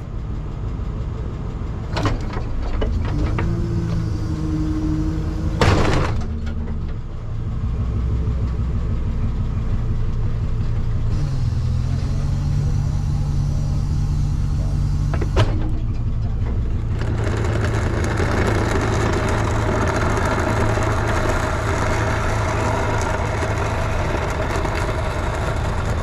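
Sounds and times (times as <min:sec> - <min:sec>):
truck engine idling: 0:00.0 - 0:26.0
steady whine: 0:09.0 - 0:26.0.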